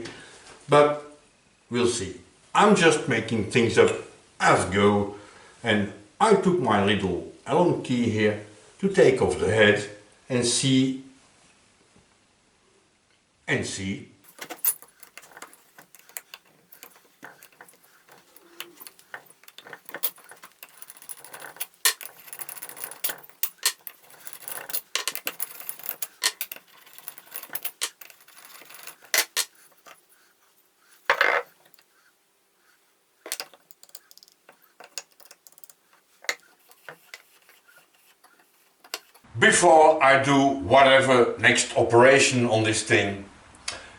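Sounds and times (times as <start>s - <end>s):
metal clatter: 14.3s - 31.9s, 33.3s - 39.2s
metal parts clicking and clinking: 14.3s - 32.0s, 33.2s - 39.2s.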